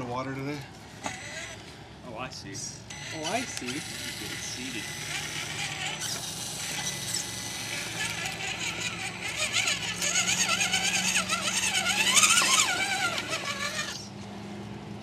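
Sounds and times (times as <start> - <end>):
electric motor and gears whining: 0.0 - 1.7, 2.6 - 14.3.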